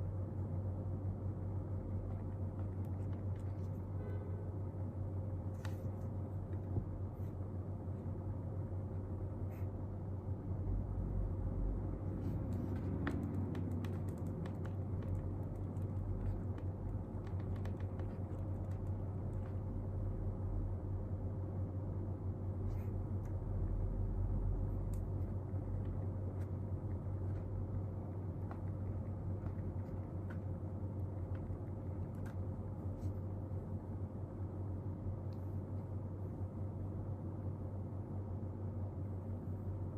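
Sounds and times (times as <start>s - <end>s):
faint constant tone: 0.0s - 39.9s
room hum: 0.0s - 39.9s
faint small clicks and taps: 12.3s - 19.7s.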